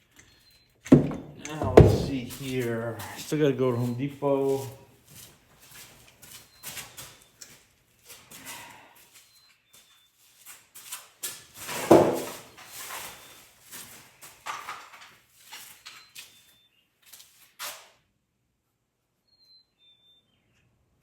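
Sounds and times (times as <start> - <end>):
tools and parts knocking and clattering: 0.8 - 2.3
loud thump: 0.9 - 2.3.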